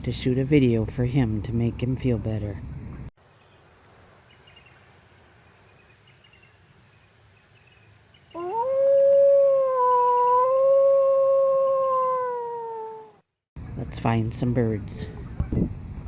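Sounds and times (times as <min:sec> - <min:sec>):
faint chirping: 0:02.6 - 0:08.5
long animal howl: 0:08.4 - 0:13.2.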